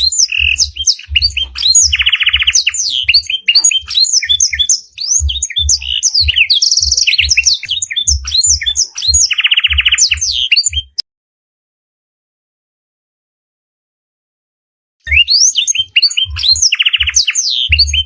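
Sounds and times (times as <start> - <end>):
low thumps: 0.0 - 10.9
canary singing: 0.0 - 11.0, 15.0 - 18.0.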